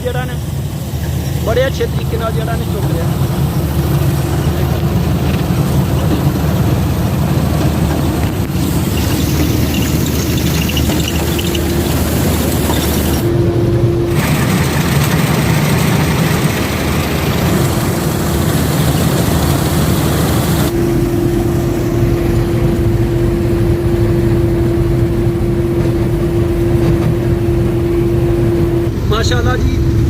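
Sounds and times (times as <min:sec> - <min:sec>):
combine harvester drone: 0:00.0 - 0:30.0
steady hum: 0:00.0 - 0:30.0.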